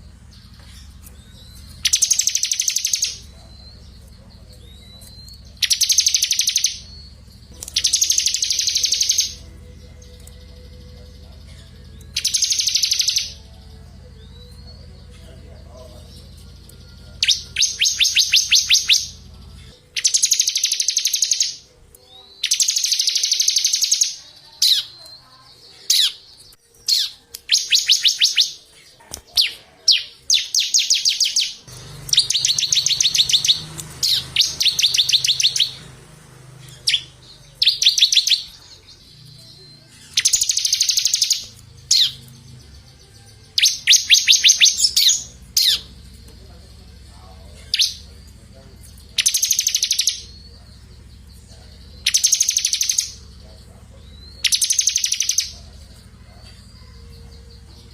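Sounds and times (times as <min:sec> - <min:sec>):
songbird trilling: 0:00.0 - 0:25.2, 0:25.8 - 0:57.9.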